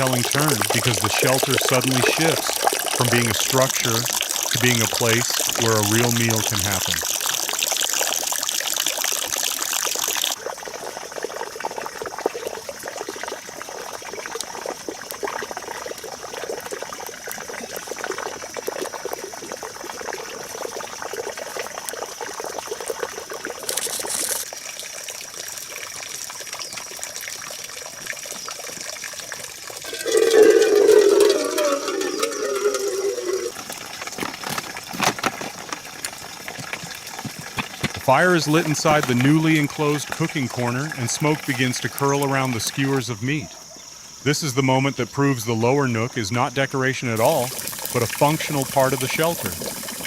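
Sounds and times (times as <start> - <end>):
water trickling and pouring: 0.0 - 43.9, 47.2 - 50.0
water splash: 29.8 - 42.8, 47.2 - 50.0
faint steady high tone: 29.9 - 33.5.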